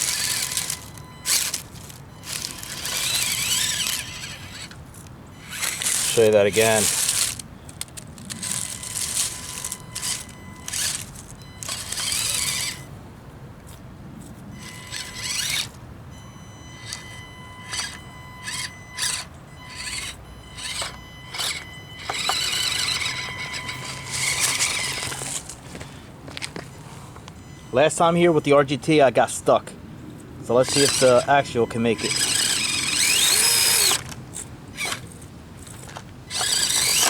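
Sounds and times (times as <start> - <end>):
dry leaves crunching: 0.0 - 4.8, 5.4 - 12.8, 23.8 - 27.0
small electric motor whining: 0.0 - 13.0, 14.2 - 26.8, 30.5 - 37.0.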